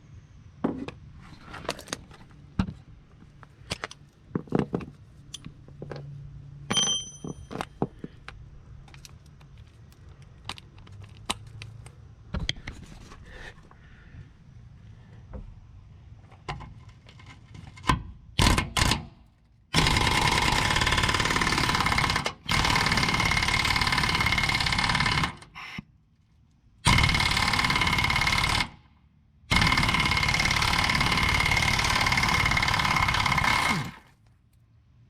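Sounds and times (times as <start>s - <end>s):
impact wrench hammering on bolts: 26.9s - 28.7s, 29.5s - 34.0s.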